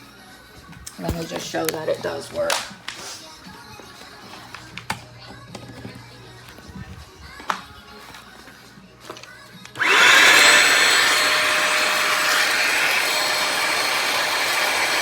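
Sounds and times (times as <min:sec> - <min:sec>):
vacuum motor whining: 0:09.6 - 0:15.0.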